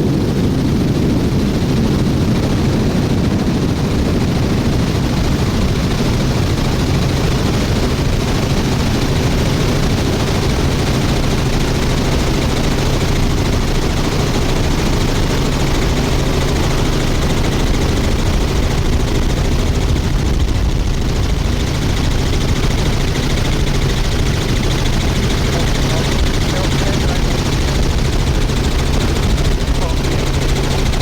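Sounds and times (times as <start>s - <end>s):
helicopter rotor chop and drone: 0.0s - 31.0s.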